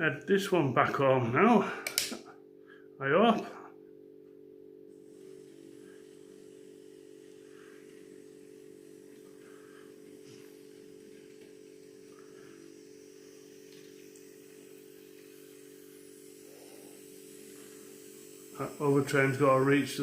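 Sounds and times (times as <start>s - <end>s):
model train motor hum: 5.0s - 20.0s.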